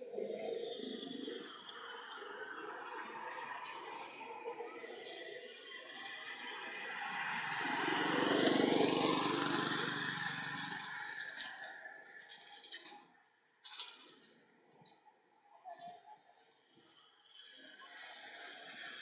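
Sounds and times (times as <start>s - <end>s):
vehicle passing by: 2.1s - 12.0s.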